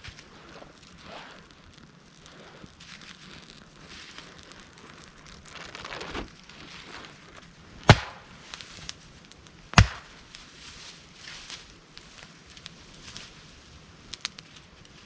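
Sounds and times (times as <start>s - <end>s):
rustling: 0.0s - 9.0s
wood cracking: 2.9s - 8.7s, 9.8s - 10.2s.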